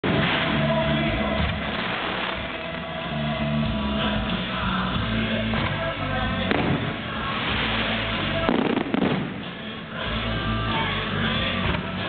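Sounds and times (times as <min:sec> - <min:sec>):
fireworks bursting with sharp bangs: 0:00.0 - 0:03.3, 0:05.4 - 0:10.2
music playing: 0:00.0 - 0:12.0.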